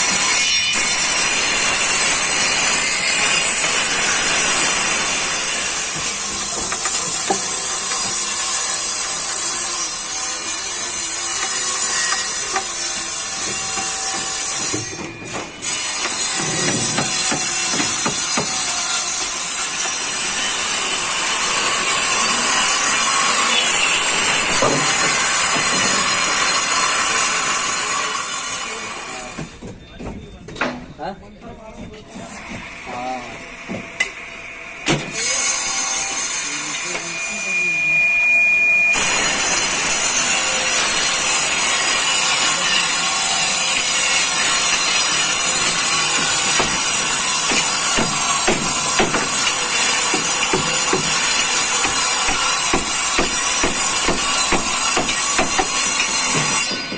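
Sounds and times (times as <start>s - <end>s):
power tool cutting wood: 0.0s - 29.4s, 34.8s - 37.8s, 38.9s - 56.9s.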